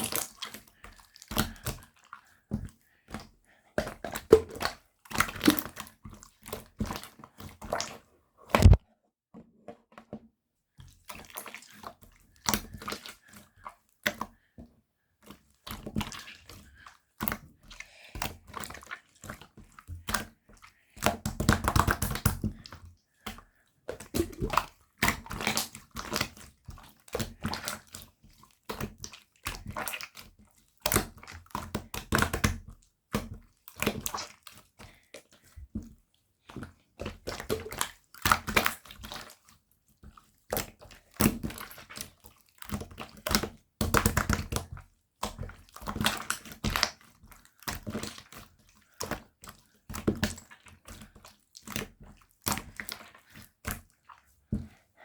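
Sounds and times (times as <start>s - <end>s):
slime squelching by hand: 11.1s - 14.4s, 15.2s - 30.2s, 36.6s - 43.4s, 45.3s - 54.8s.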